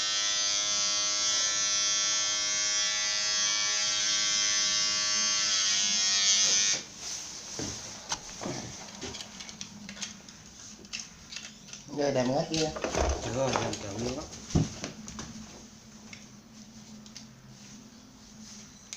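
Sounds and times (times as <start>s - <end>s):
electric hair clipper buzzing: 0.0s - 6.9s.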